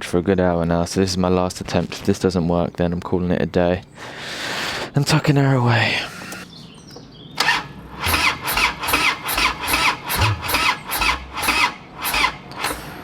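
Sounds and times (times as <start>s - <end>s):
motorcycle engine cranking: 7.4s - 13.0s.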